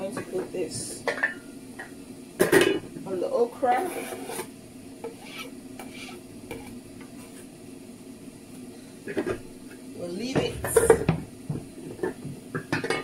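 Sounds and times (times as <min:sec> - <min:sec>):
spoon stirring in a pot: 0:03.7 - 0:07.4.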